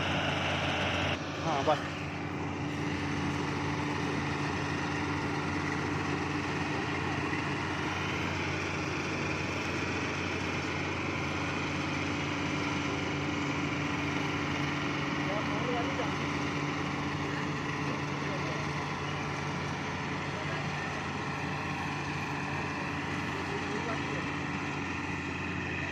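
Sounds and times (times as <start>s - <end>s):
harvester engine humming: 0.0s - 25.9s.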